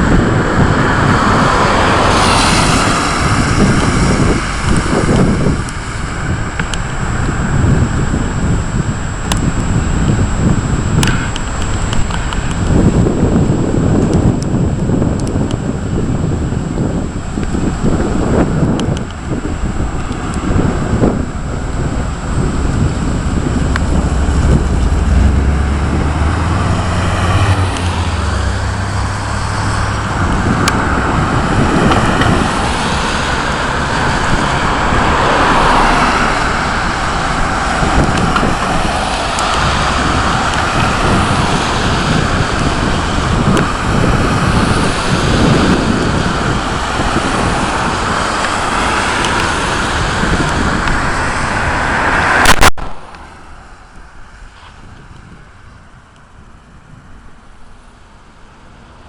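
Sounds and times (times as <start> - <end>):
wind buffeting microphone: 0.0 - 59.0
steady rain: 16.0 - 54.7
low rumble of thunder: 19.5 - 32.8.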